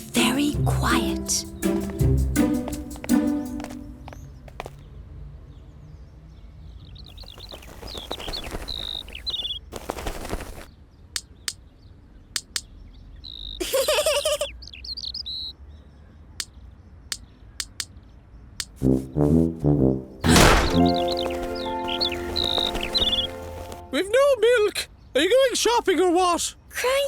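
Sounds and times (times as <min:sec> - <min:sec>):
small birds chirping: 0:05.6 - 0:18.8, 0:20.4 - 0:24.0
noisy rustles: 0:07.1 - 0:10.8, 0:20.2 - 0:23.9
sharp taps: 0:12.4 - 0:12.7, 0:17.1 - 0:17.9, 0:18.6 - 0:18.8.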